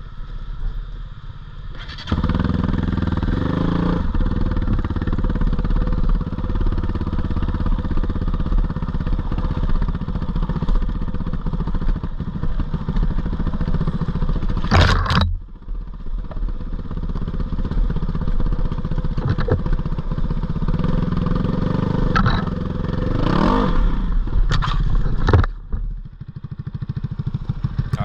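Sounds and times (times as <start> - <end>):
sharp knocks and clatter: 14.5 - 15.5, 19.2 - 19.9, 22.1 - 22.6, 24.5 - 26.0
dirt bike engine revving: 20.8 - 24.1.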